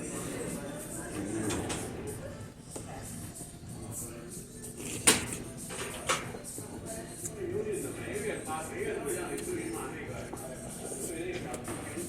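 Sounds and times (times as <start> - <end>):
faint background music: 0.0 - 12.0
spoon and bowl eating noises: 4.3 - 7.4.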